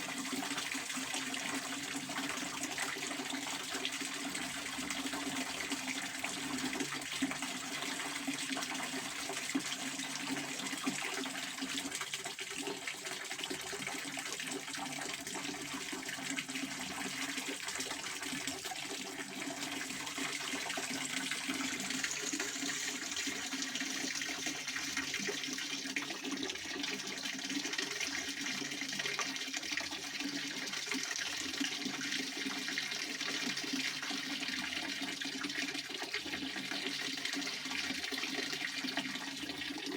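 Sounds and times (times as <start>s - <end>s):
fountain water splashing: 19.9s - 25.5s.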